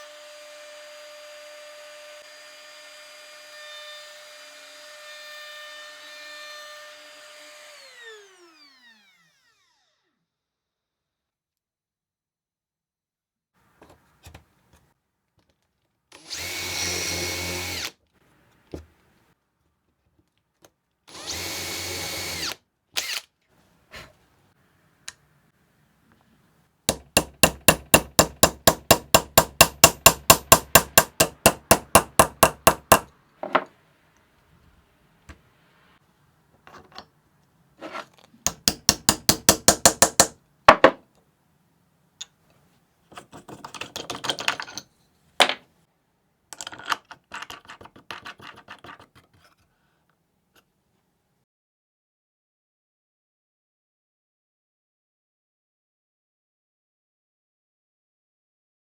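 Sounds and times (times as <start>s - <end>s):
small power drill running: 0.0s - 10.4s, 16.2s - 17.9s, 21.1s - 23.3s.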